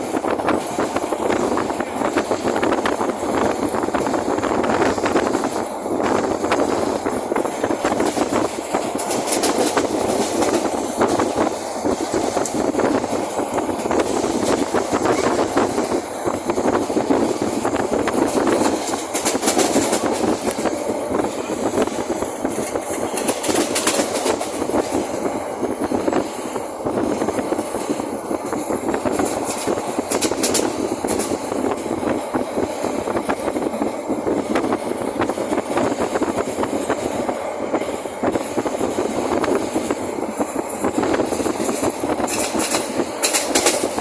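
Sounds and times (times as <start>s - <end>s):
train wheels rumbling on rails: 0.0s - 44.0s
rattle of clicks: 6.6s - 16.0s, 18.0s - 20.8s, 22.0s - 25.2s, 27.5s - 31.8s, 41.0s - 44.0s.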